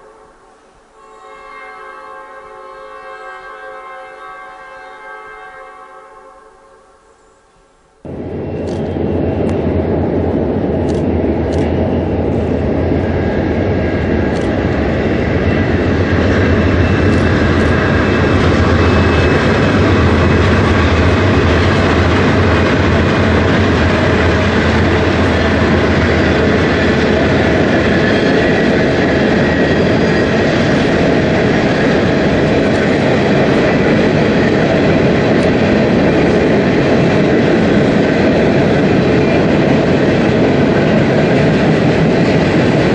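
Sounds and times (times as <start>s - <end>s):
diesel locomotive engines droning: 8.0s - 42.9s
train wagons clattering on rails: 14.6s - 42.9s.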